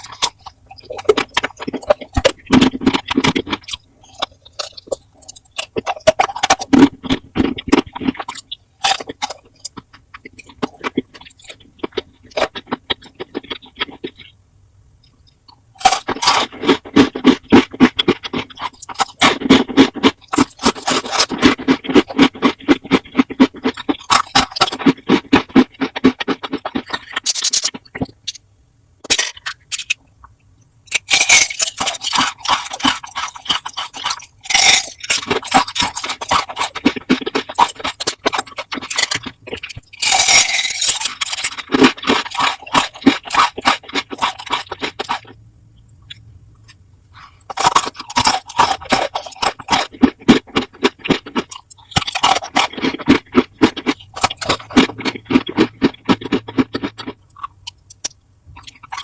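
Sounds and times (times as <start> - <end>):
crunching and chewing crisp food: 0.0 - 59.0.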